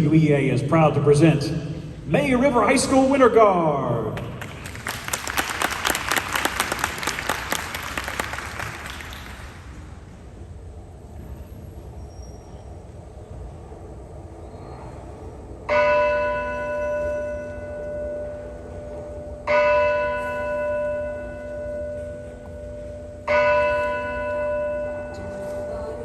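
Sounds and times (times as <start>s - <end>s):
church bell tolling: 15.7s - 26.0s.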